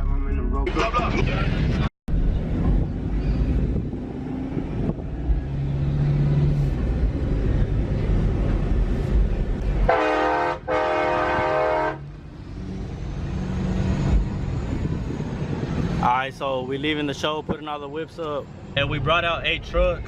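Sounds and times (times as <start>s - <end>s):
truck engines rumbling: 0.0s - 20.0s
multi-tone truck horn: 9.8s - 12.1s.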